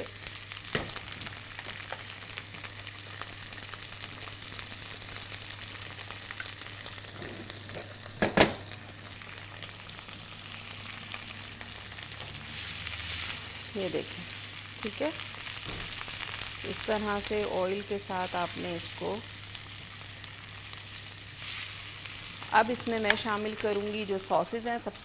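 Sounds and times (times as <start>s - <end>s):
vegetables sizzling in a wok: 0.0s - 25.0s.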